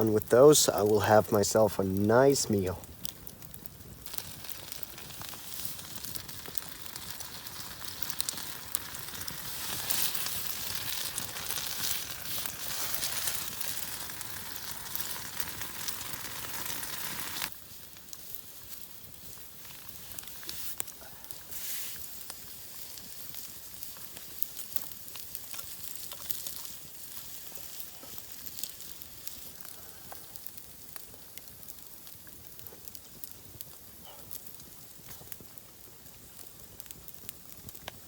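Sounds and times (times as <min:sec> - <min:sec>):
vegetables sizzling in a frying pan: 0:04.1 - 0:18.7, 0:20.0 - 0:20.8.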